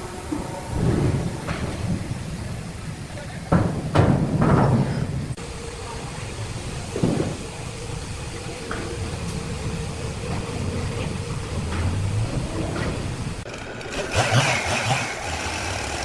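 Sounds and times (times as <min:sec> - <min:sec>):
engine low rumble: 0:00.0 - 0:16.0
heavy knocks: 0:03.5 - 0:05.3.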